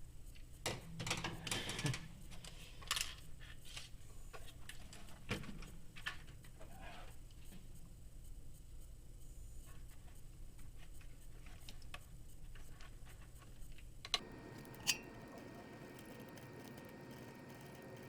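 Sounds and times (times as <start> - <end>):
small parts clicking: 14.2 - 18.0.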